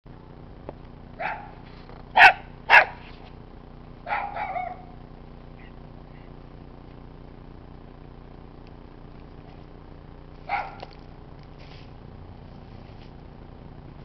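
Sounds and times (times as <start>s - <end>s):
tractor engine idling: 0.1s - 14.0s
dog barking: 1.2s - 1.6s, 2.2s - 3.0s, 4.0s - 5.0s, 10.4s - 11.0s.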